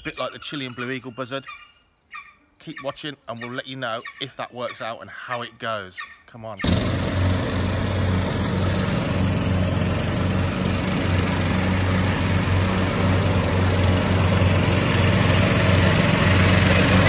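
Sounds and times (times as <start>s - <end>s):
engine drone: 6.6s - 17.0s.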